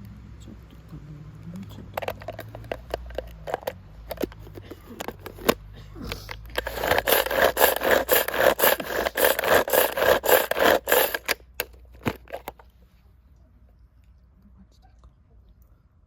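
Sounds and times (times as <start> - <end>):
rhythmic scraping strokes: 6.5 - 11.4.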